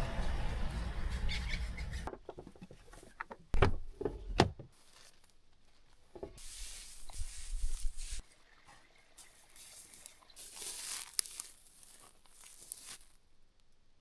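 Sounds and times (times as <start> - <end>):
rustling: 4.7 - 8.3, 9.2 - 13.2.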